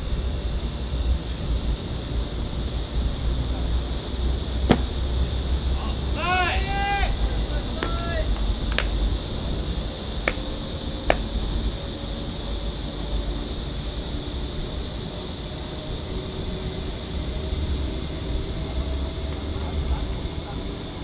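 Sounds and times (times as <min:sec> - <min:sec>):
sharp knocks: 0:04.7 - 0:05.0, 0:07.8 - 0:09.0, 0:10.3 - 0:11.4.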